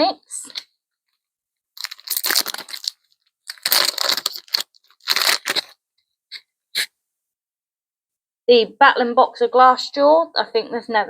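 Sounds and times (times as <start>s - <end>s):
foil wrapper crinkling and tearing: 1.8s - 5.8s.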